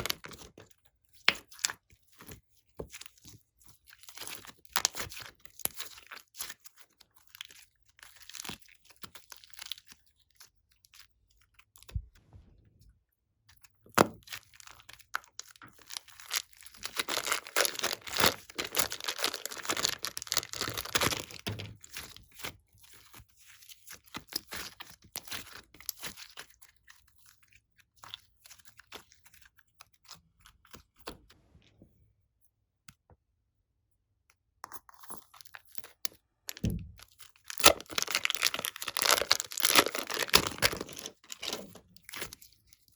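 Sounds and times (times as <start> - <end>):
slime squeezed by hand: 16.0 - 21.4, 36.5 - 41.6.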